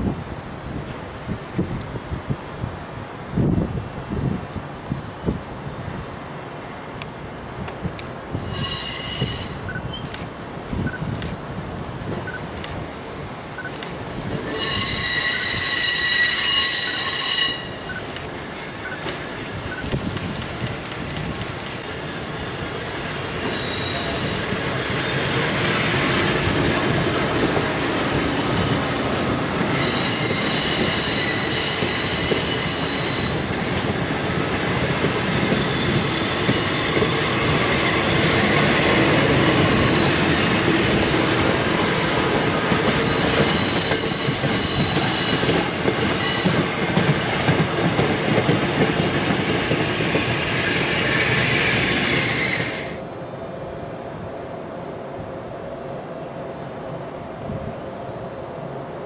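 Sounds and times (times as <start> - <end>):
electric train running past: 5.2 - 59.0
faint high squeal: 8.4 - 10.0, 14.5 - 18.2, 23.5 - 24.4.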